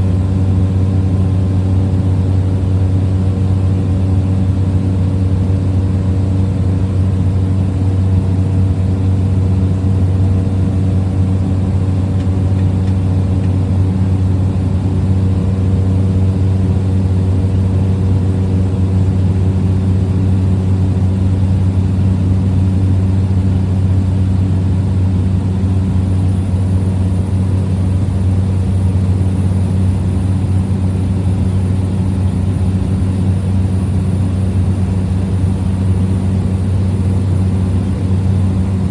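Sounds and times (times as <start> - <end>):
small plane engine droning: 0.0 - 38.9.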